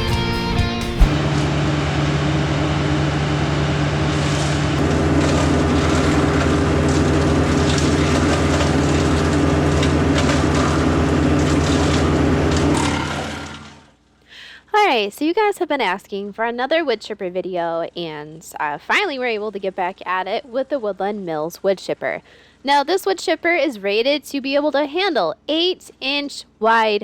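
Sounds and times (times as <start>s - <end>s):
tractor engine droning: 0.0s - 13.9s
wood chipper cracking and crunching: 3.9s - 13.9s.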